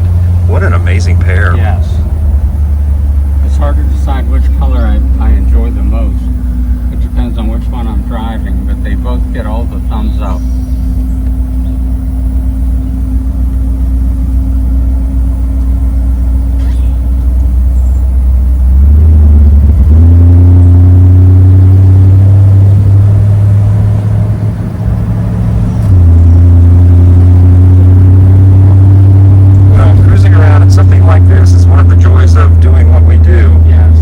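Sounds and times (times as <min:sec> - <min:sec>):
car engine and exhaust: 0:00.0 - 0:34.0.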